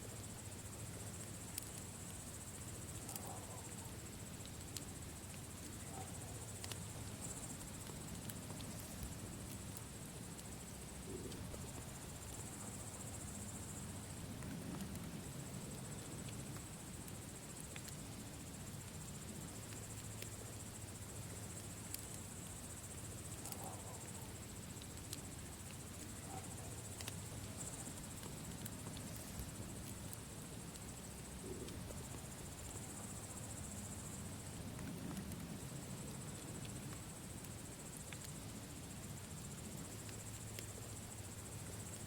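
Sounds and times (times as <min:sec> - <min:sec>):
crickets chirring: 0:00.0 - 0:42.0
campfire crackling and popping: 0:00.2 - 0:42.0.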